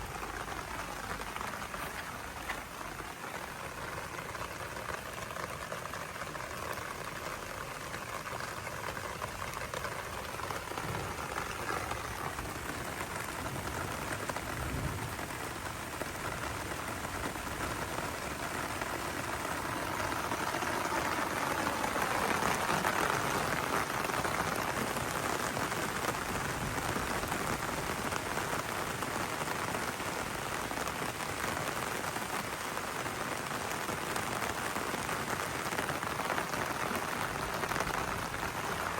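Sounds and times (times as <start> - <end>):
heavy rain pattering: 0.0 - 38.9.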